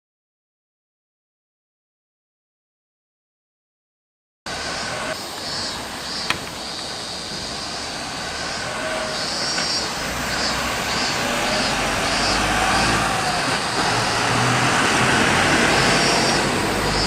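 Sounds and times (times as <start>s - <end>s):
approaching vehicle rumble: 4.5s - 17.0s.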